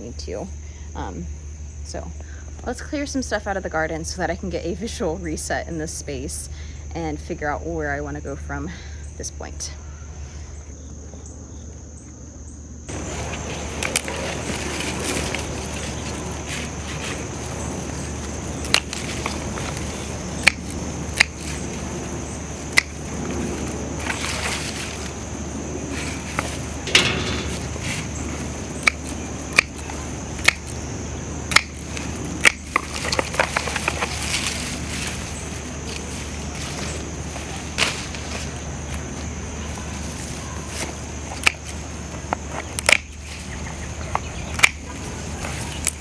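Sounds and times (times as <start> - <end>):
crickets trilling: 0.0 - 46.0
hand pruners snipping stems: 12.9 - 46.0
stalks snapping and crackling: 12.9 - 46.0
steady hiss: 12.9 - 46.0
sharp clicks: 13.8 - 30.8, 31.5 - 34.8.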